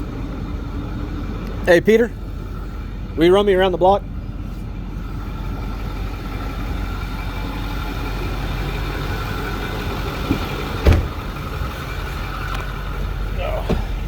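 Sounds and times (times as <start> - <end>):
diesel truck engine idling: 0.0 - 14.0
thump: 10.3 - 11.2.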